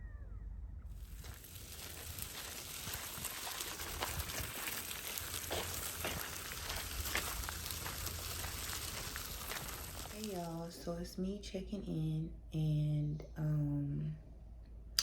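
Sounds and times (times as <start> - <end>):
stroller wheels rolling on trail: 1.0 - 10.8.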